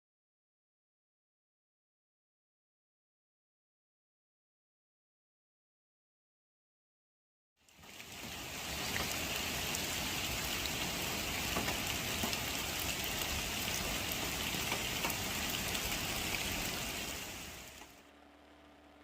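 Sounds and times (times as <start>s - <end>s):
rain falling: 7.7s - 18.0s
raindrops ticking on a surface: 7.7s - 18.0s.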